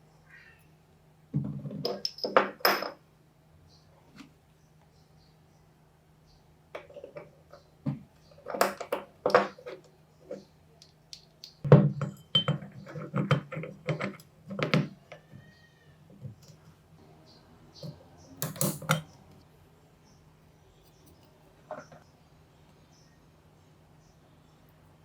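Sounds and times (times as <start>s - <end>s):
small metal parts clinking: 18.4s - 19.1s.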